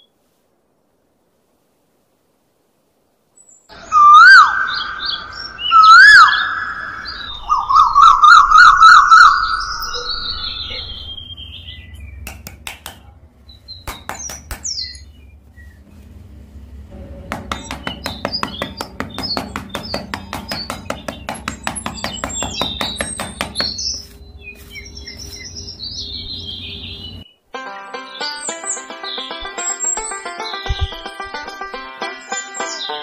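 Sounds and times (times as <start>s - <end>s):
whistled bird-like chirps: 3.4s - 12.2s
sharp clicks: 12.0s - 13.1s
music with fast ticking beat: 17.0s - 23.3s.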